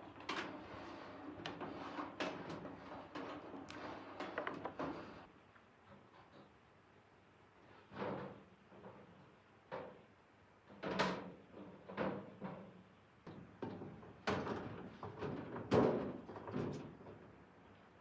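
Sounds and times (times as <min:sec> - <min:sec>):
irregular knocks and clatters: 0:00.1 - 0:05.2, 0:10.6 - 0:17.4.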